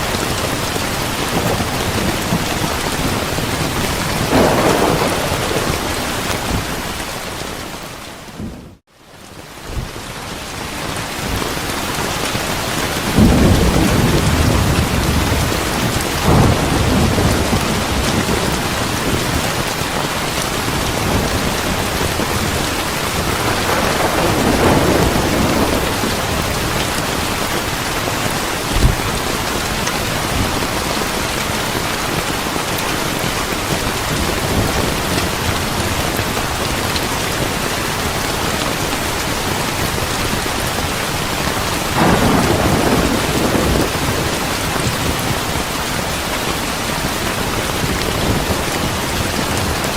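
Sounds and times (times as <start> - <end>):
thunder rumbling: 0.0 - 8.8, 12.8 - 49.9
heavy rain: 0.0 - 49.9.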